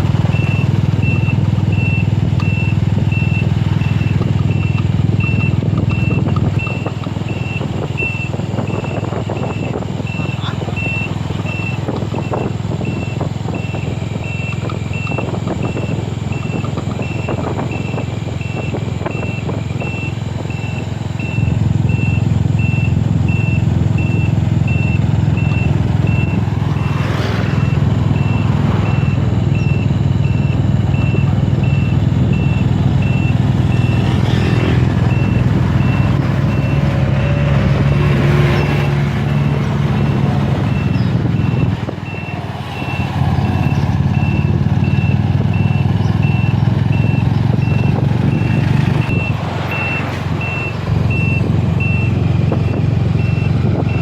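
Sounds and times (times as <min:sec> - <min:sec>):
low engine rumble: 0:00.0 - 0:54.0
reversing alarm beeping: 0:00.2 - 0:54.0.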